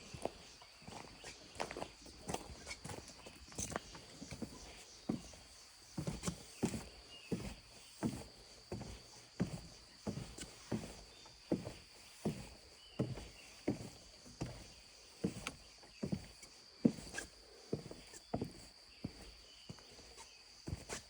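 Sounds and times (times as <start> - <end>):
footsteps walking: 0.1 - 5.4.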